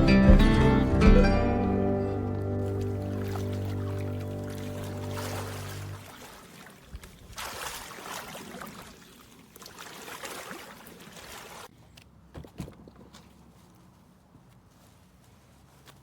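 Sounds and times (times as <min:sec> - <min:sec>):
water sloshing and splashing: 0:02.1 - 0:11.7.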